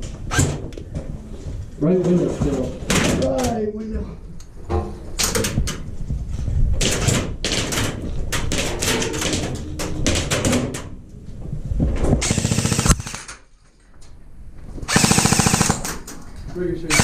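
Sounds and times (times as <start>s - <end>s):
knocks and clatter: 4.7s - 13.4s
airsoft gun full-auto burst: 12.2s - 13.3s, 14.9s - 16.0s.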